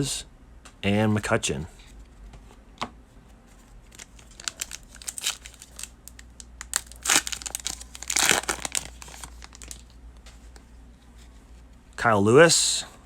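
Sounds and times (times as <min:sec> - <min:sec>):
foil wrapper crinkling and tearing: 0:03.9 - 0:10.0.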